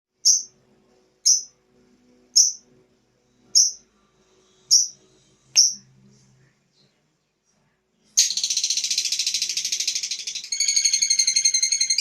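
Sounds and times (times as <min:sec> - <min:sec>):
bird shrill chirps: 0:00.3 - 0:00.5, 0:02.4 - 0:02.6, 0:03.6 - 0:03.8, 0:08.2 - 0:12.0.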